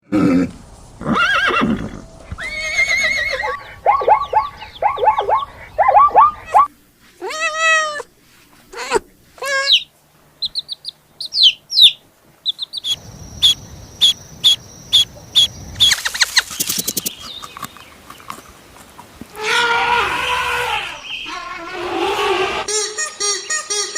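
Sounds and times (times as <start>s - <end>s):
high-pitched chirps: 9.6s - 17.5s.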